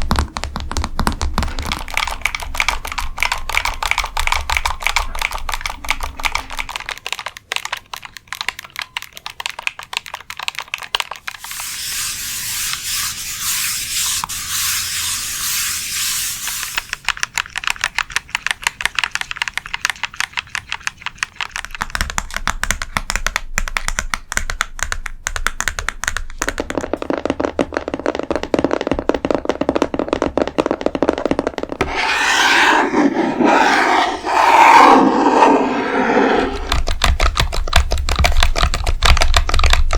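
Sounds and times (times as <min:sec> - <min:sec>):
fingernail tapping and scratching: 0:31.8 - 0:38.9.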